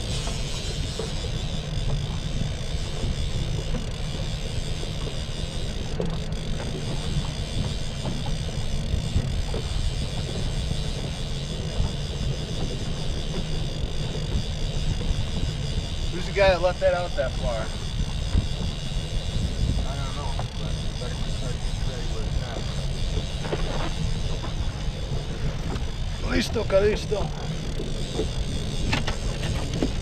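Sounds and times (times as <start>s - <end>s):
boat motor running: 0.0s - 30.0s
wind on microphone: 6.9s - 30.0s.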